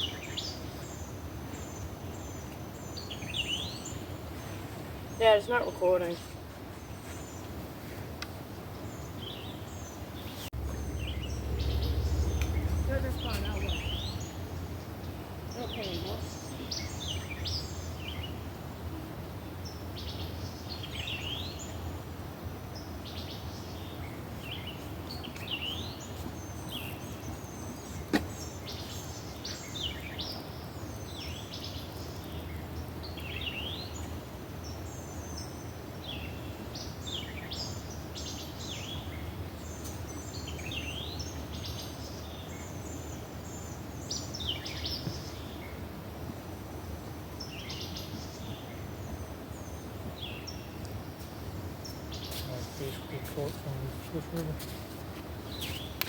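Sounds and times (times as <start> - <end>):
songbirds chirping: 0.0 - 56.0
low outdoor rumble: 10.4 - 17.9.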